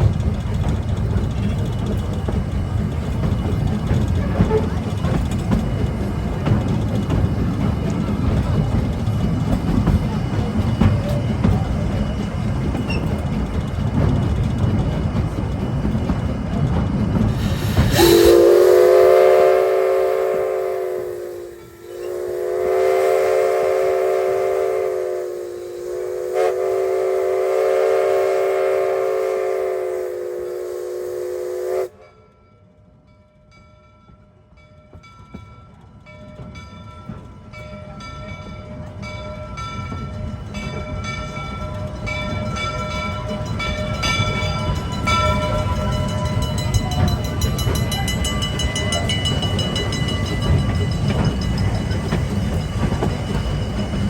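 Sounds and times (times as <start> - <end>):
low rumble of train running: 0.0 - 54.0
locomotive chime whistle: 17.4 - 32.7, 35.4 - 54.0.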